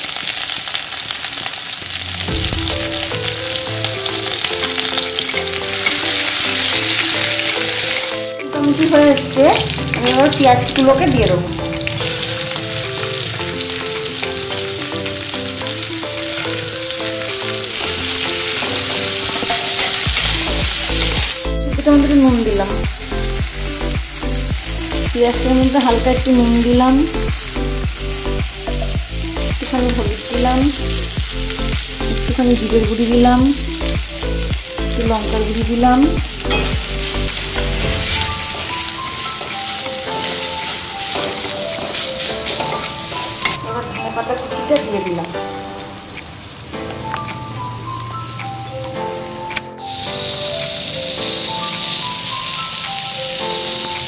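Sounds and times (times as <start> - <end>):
onions sizzling in oil: 0.0 - 54.0
simple melody background music: 2.2 - 54.0
soft background tune: 2.2 - 54.0
metal spatula scraping a wok: 18.4 - 20.2.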